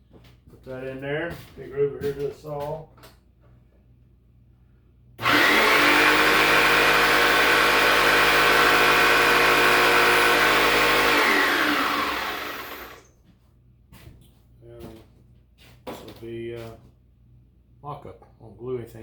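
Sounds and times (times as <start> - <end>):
electric power saw running: 5.2 - 13.1.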